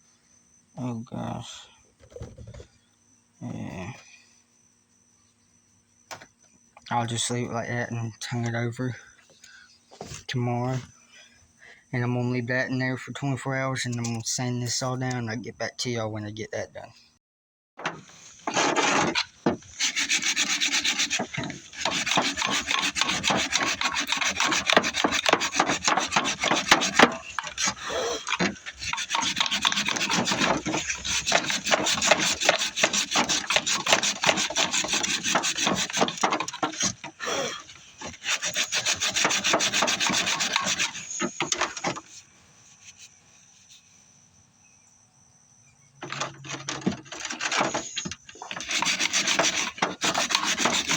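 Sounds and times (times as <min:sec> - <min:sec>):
sandpaper rubbing on wood: 0:18.5 - 0:37.0, 0:38.0 - 0:41.9, 0:48.5 - 0:50.9.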